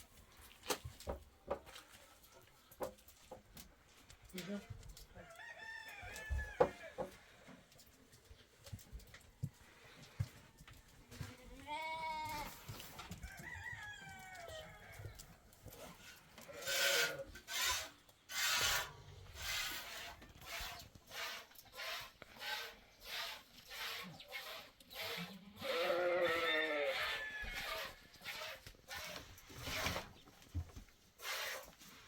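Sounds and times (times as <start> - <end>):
goat bleating: 11.2 - 12.6, 25.1 - 28.5.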